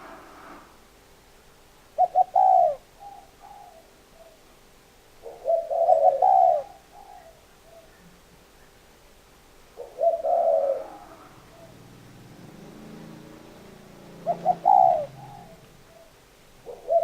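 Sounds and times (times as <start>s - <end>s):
dove cooing: 1.9s - 4.4s, 5.2s - 8.8s, 9.7s - 17.0s.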